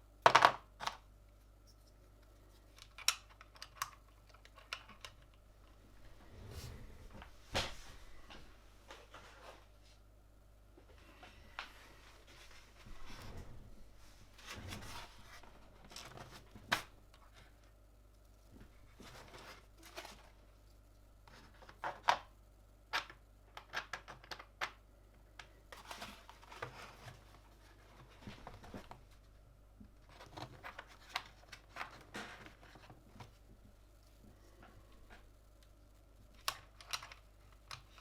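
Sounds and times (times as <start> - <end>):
soft rustling: 10.8 - 16.6.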